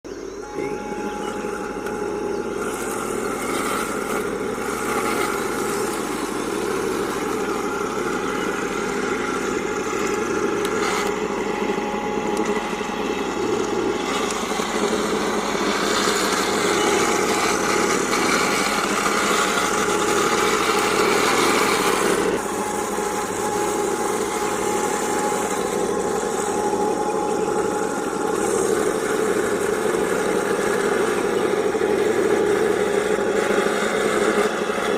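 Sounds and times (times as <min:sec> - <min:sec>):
thin steady whine: 0:00.0 - 0:34.9
toy tank engine noise: 0:00.0 - 0:34.9.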